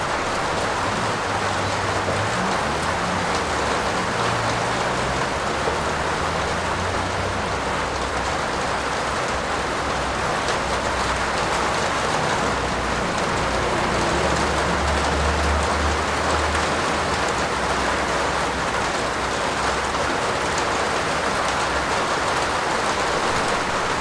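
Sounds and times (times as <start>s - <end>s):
heavy rain hissing: 0.0s - 24.0s.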